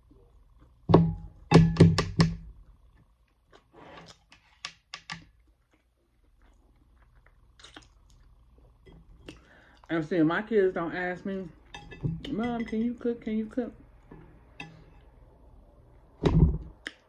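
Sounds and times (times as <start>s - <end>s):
mouth smacks while chewing: 5.6s - 8.3s
breath: 9.3s - 9.8s.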